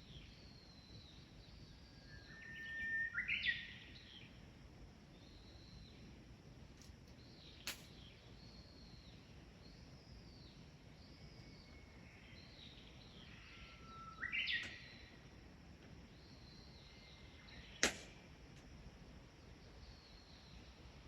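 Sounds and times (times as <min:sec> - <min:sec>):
sharp click: 0:06.8 - 0:08.0, 0:17.8 - 0:18.1.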